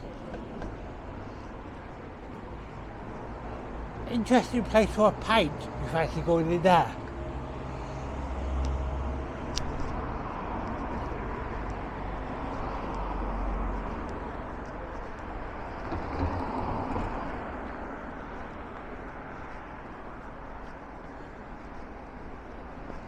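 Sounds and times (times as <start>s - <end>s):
passing vehicles: 0.0s - 23.0s.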